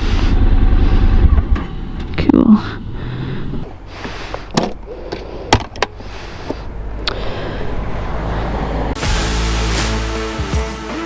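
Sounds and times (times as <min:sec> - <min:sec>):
low steady rumble: 0:00.0 - 0:03.9.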